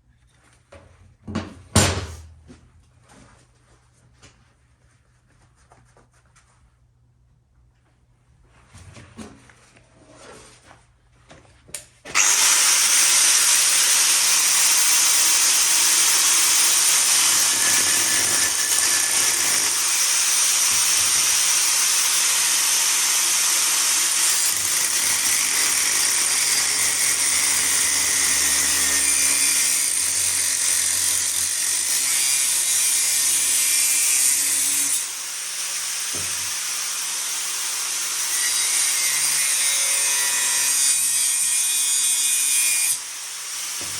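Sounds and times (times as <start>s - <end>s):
angle grinder on steel pipe: 12.1s - 43.9s.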